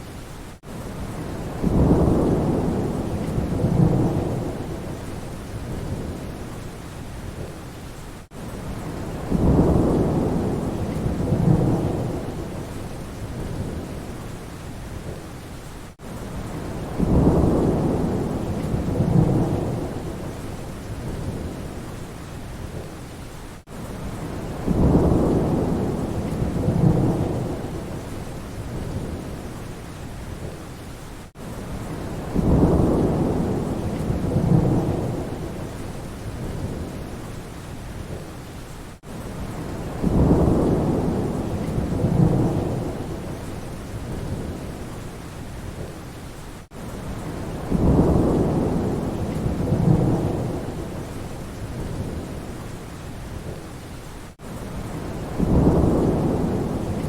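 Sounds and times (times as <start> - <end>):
steady rain: 0.0 - 57.0
thunder rumbling: 1.0 - 6.5, 8.7 - 14.2, 16.4 - 21.8, 24.0 - 29.5, 31.7 - 37.2, 39.4 - 44.9, 47.1 - 52.5, 54.7 - 57.0.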